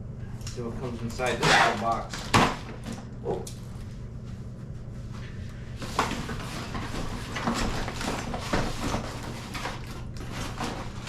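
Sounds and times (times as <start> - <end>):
steady low hum: 0.0 - 11.0
cardboard and packaging rustling: 5.8 - 11.0.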